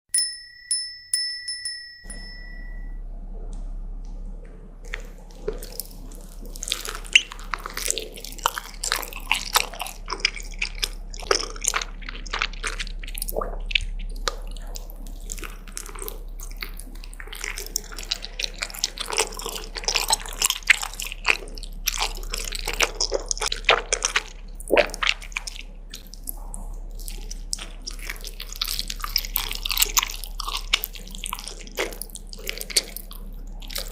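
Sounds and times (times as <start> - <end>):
short ringing chime: 0.1 - 3.0
steady low hum: 0.2 - 33.9
wet chewing and smacking: 4.4 - 33.9.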